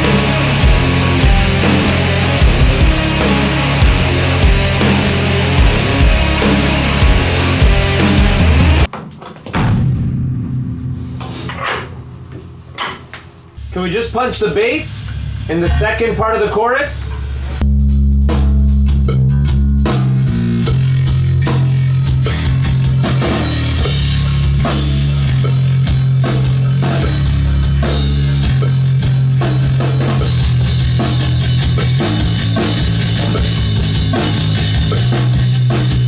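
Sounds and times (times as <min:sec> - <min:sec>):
bass guitar low notes: 0:00.0 - 0:08.9, 0:17.1 - 0:36.0
guitar: 0:00.0 - 0:08.9, 0:18.8 - 0:36.0
drum kit: 0:00.0 - 0:14.2, 0:17.2 - 0:36.0.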